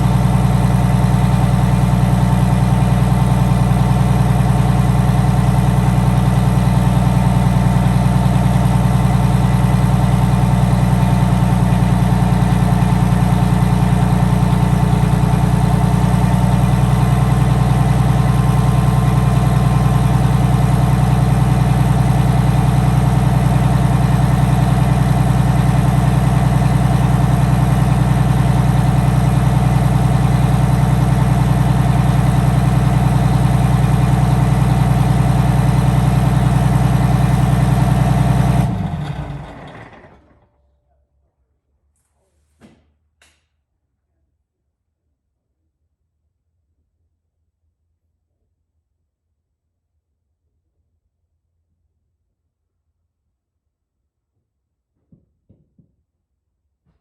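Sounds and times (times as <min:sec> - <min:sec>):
diesel engine idling: 0:00.0 - 0:40.4.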